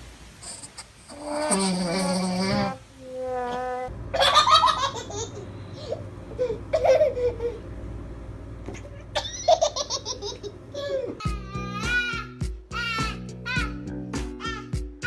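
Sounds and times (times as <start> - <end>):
baby giggling: 4.2 - 7.6, 8.8 - 12.3.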